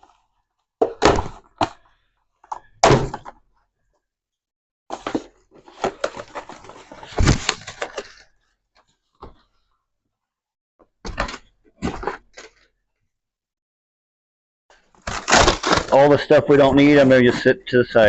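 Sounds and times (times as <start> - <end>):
packaging rustling and clattering: 4.9 - 9.0.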